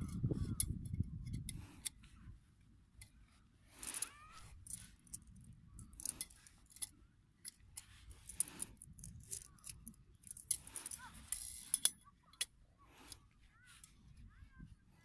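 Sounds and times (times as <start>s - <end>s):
metal clinking and clicking: 3.8s - 12.5s.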